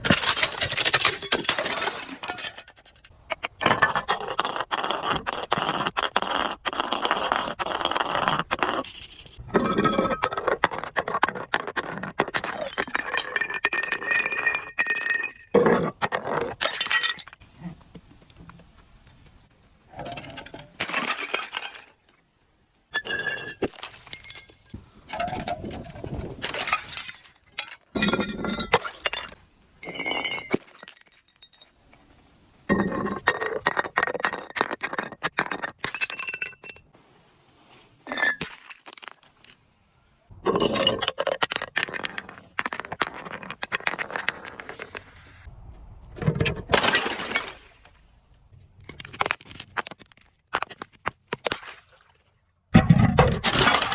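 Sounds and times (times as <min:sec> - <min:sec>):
glass bottles breaking: 0:00.0 - 0:02.8, 0:16.6 - 0:17.4, 0:20.1 - 0:22.0, 0:22.9 - 0:25.4, 0:26.4 - 0:31.8, 0:46.7 - 0:47.9, 0:52.8 - 0:53.9.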